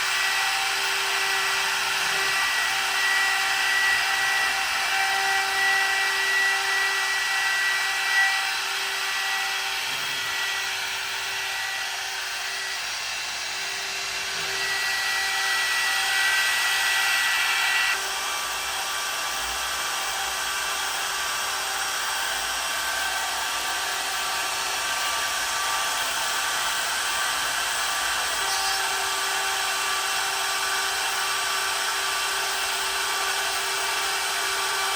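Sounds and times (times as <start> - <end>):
router spindle whining: 0.0 - 34.9.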